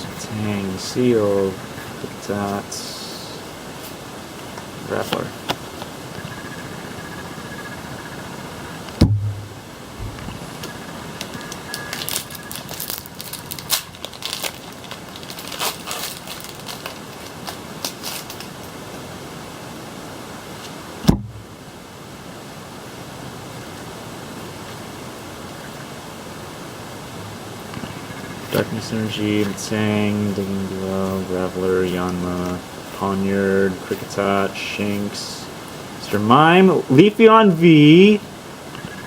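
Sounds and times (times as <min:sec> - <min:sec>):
steady hiss: 0:00.0 - 0:39.0
handling thumps: 0:09.0 - 0:10.4
foil wrapper crackling: 0:11.2 - 0:18.7.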